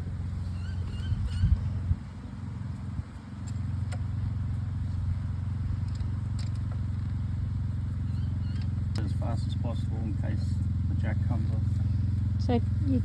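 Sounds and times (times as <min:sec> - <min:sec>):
engine drone: 0:00.0 - 0:13.0
metallic clicks of wheel nuts: 0:05.8 - 0:07.2.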